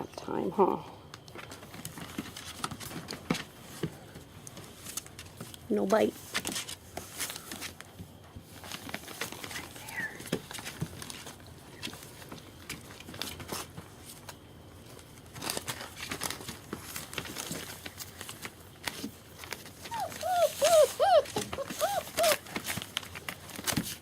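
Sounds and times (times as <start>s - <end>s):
puppies rustling and scratching: 1.3s - 24.0s
faint puppy squeak: 19.9s - 22.4s.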